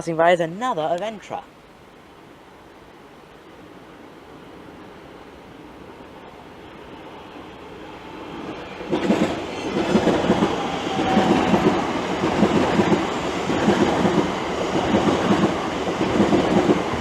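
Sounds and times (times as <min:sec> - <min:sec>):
electric train passing: 0:02.1 - 0:17.0
train wheels clickety-clack: 0:08.4 - 0:17.0.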